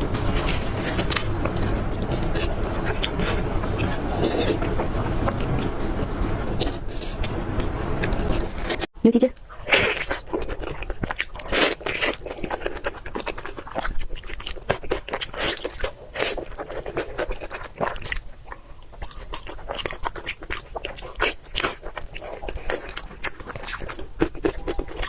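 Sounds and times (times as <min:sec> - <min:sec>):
person crunching food: 0:08.0 - 0:25.0.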